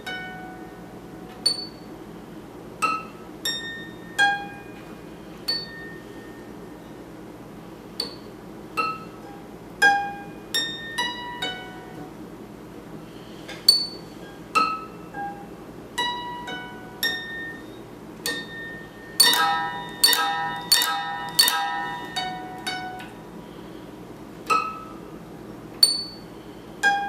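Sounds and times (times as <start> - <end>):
guitar plucked notes: 13.7 - 23.2.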